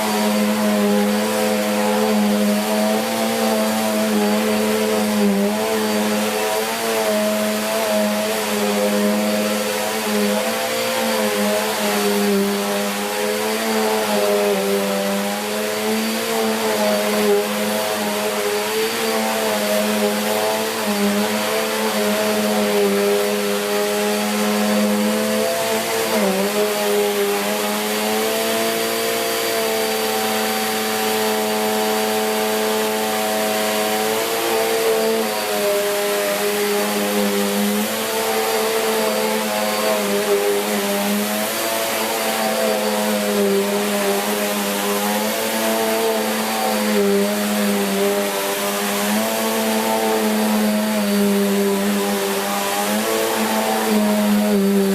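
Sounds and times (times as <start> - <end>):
upright vacuum cleaner running: 0.0 - 54.9.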